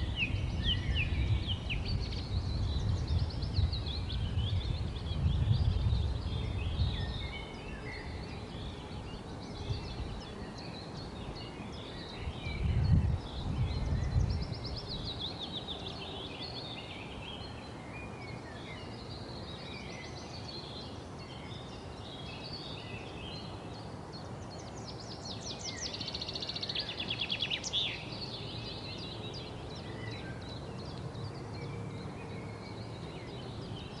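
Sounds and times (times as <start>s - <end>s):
songbirds chirping and singing: 0.0s - 34.0s.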